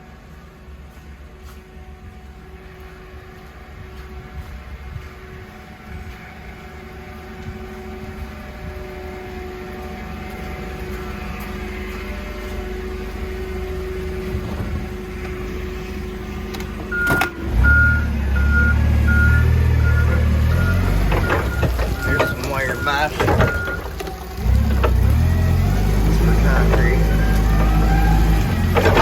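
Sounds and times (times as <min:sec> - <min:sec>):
work vehicle engine running: 0:00.0 - 0:29.0
reversing alarm beeping: 0:02.0 - 0:29.0
mechanical clunk: 0:21.0 - 0:25.0, 0:28.7 - 0:29.0.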